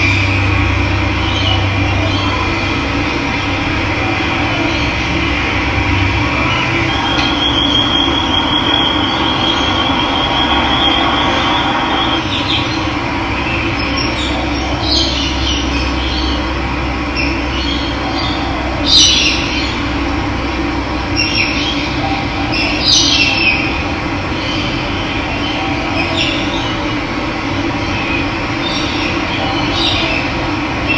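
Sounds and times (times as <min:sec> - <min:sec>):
high steady tone: 0:00.0 - 0:12.4
birds chirping: 0:00.0 - 0:20.1.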